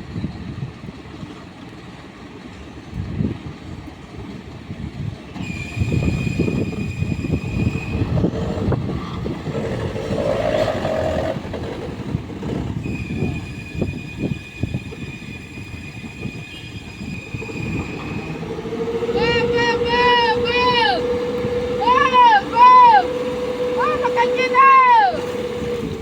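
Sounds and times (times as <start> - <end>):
truck engine rumbling: 5.1 - 15.0, 17.0 - 26.0
hydraulic hoist whine: 5.3 - 26.0.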